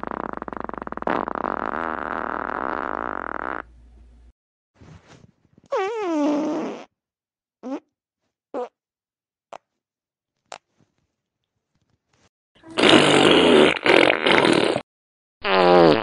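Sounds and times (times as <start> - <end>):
fart sounds: 0.0 - 3.7, 5.7 - 6.9, 7.6 - 7.9, 8.5 - 8.8, 12.6 - 16.0.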